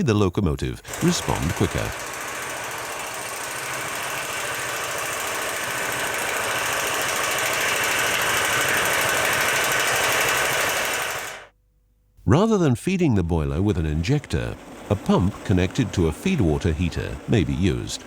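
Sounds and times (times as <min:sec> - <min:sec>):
mechanical running noise: 0:00.8 - 0:11.5, 0:13.4 - 0:18.0
rapid rattle: 0:00.9 - 0:11.4.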